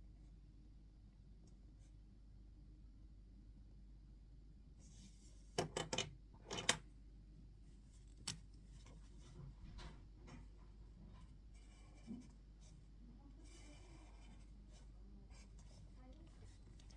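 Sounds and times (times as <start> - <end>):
faint rustling and scratching: 4.8 - 5.6, 7.6 - 16.9.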